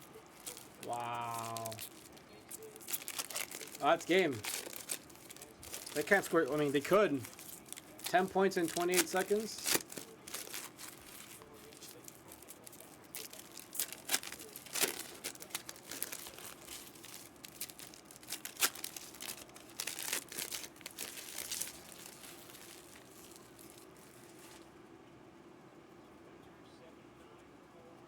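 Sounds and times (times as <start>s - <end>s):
plastic packaging crinkling and tearing: 0.0s - 24.7s.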